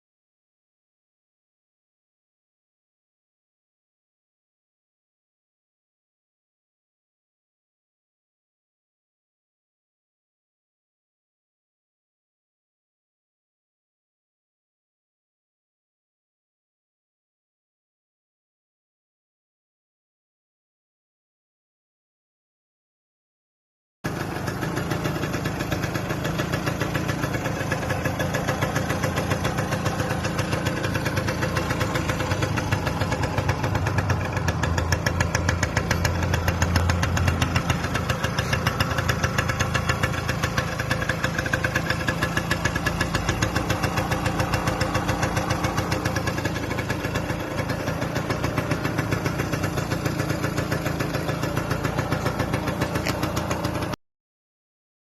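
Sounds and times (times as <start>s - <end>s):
two-stroke engine idling: 24.1s - 54.0s.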